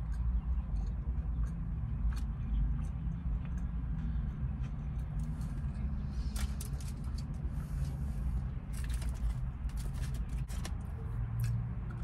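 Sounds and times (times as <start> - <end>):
wet mouth clicks and smacks: 0.0 - 5.3
person chewing: 0.0 - 7.8
car low rumble: 0.0 - 12.0.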